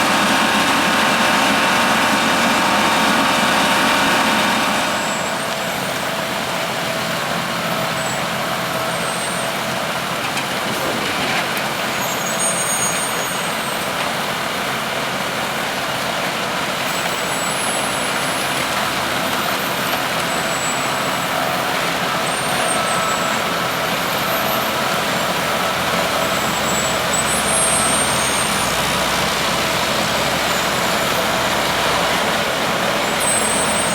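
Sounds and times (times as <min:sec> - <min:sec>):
snow blower engine running: 0:00.0 - 0:12.6, 0:14.4 - 0:33.9.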